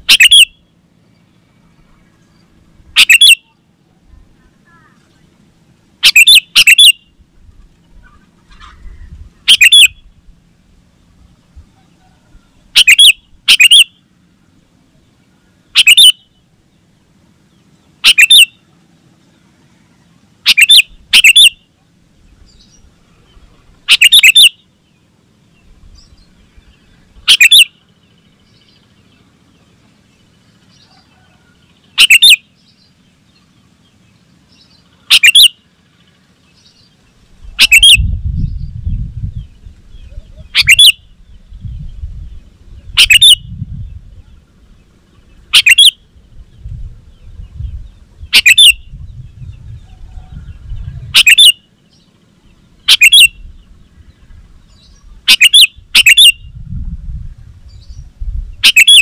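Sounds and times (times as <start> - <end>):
bird giving sharp calls: 0.0 - 0.7, 2.9 - 3.6, 6.0 - 7.2, 7.9 - 10.1, 11.8 - 14.0, 15.7 - 16.4, 18.0 - 18.6, 20.4 - 21.7, 23.8 - 24.7, 26.2 - 27.9, 30.8 - 32.6, 34.9 - 35.7, 37.4 - 38.2, 39.9 - 41.4, 42.8 - 43.6, 45.2 - 46.1, 48.2 - 49.0, 50.0 - 51.7, 52.5 - 53.8, 54.8 - 56.6, 58.6 - 59.0.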